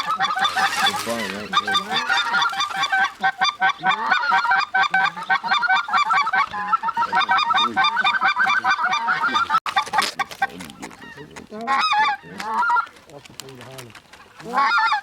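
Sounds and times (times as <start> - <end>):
geese honking and clucking: 0.0 - 15.0.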